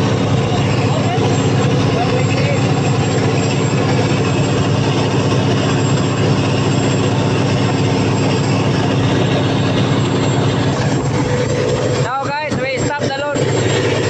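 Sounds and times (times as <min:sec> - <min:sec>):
diesel generator engine running: 0:00.0 - 0:14.0.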